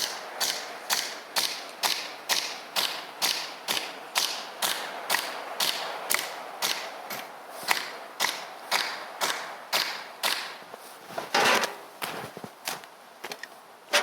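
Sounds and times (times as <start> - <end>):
hammering into wood: 0.0 - 10.6.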